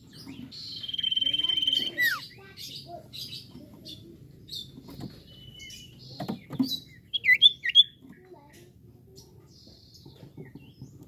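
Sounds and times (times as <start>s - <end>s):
bird whistles and chirps: 0.6s - 2.4s, 6.6s - 8.0s.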